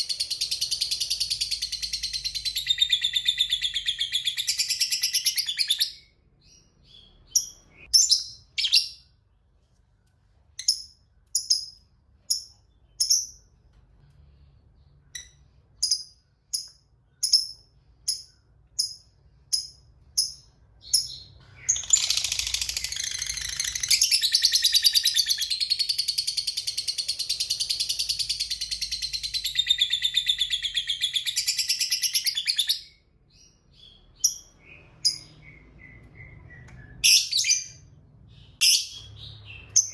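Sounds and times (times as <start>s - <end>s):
lovebird chirping: 0.0s - 9.3s, 10.5s - 13.6s, 14.8s - 39.9s.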